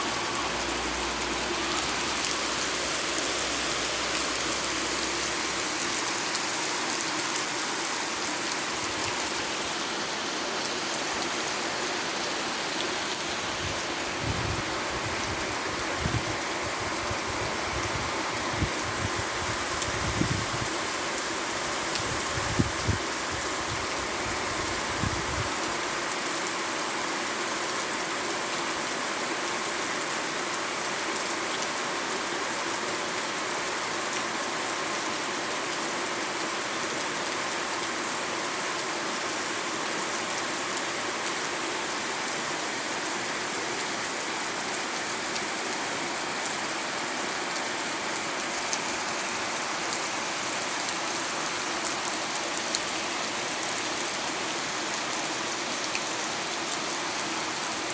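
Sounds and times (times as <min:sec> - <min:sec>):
heavy rain hissing: 0:00.0 - 0:26.2.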